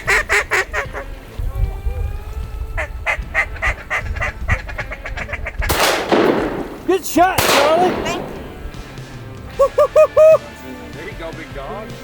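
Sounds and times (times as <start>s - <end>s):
ducks quacking: 0.0s - 10.4s
shotgun blast: 5.7s - 9.1s.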